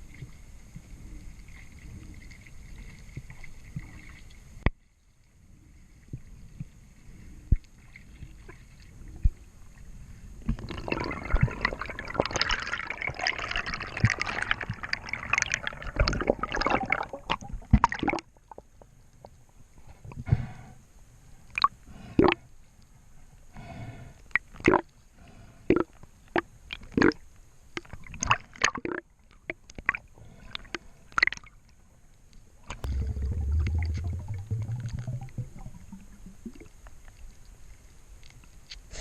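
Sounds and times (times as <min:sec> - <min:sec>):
water sloshing and bubbling: 0:00.0 - 0:20.6, 0:21.4 - 0:22.5, 0:24.2 - 0:38.5
crackling splashing burst: 0:32.8 - 0:36.8.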